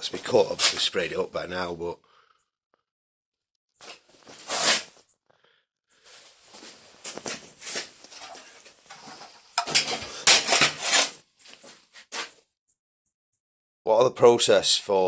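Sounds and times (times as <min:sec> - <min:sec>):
metal plates scraping and clattering: 0:08.1 - 0:11.1.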